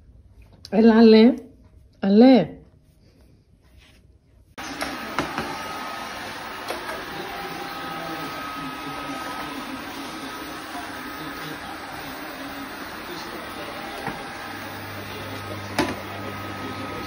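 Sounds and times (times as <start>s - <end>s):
robot vacuum cleaner running: 4.6s - 17.0s.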